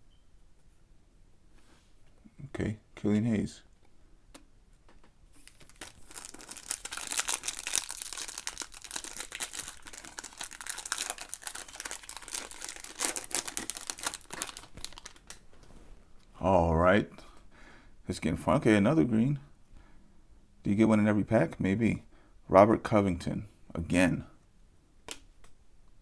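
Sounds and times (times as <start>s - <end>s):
foil wrapper crinkling and tearing: 5.4s - 15.4s.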